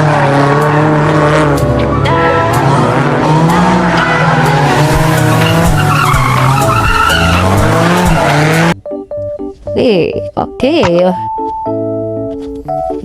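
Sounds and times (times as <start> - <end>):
car engine revving: 0.0 - 8.8
tyre squeal: 3.8 - 8.8.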